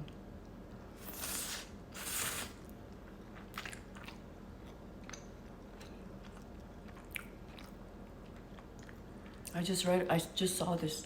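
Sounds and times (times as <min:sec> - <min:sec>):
person chewing food: 0:01.0 - 0:09.5.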